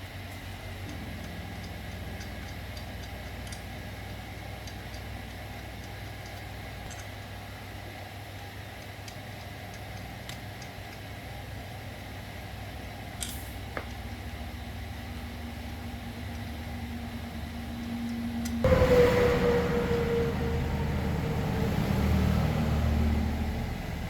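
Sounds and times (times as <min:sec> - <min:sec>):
machine humming: 0:14.2 - 0:24.0
loud machine with whine: 0:14.6 - 0:24.0
faint steady tone: 0:15.0 - 0:24.0.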